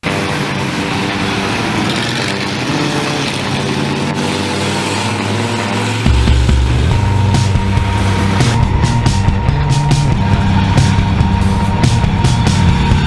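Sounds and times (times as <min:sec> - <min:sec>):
monster truck engine running: 0:00.0 - 0:13.0
deep bass sound: 0:06.1 - 0:13.0.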